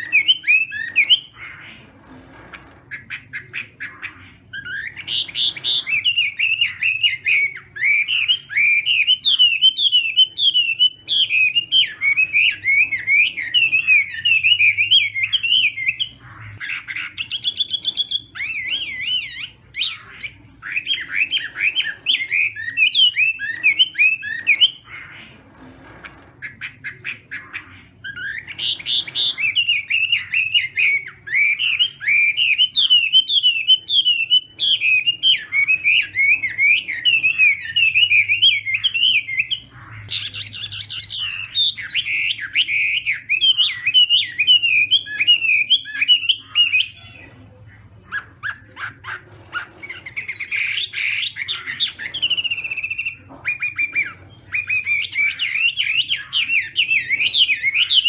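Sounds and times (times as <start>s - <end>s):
bird warbling song: 0.0s - 58.0s.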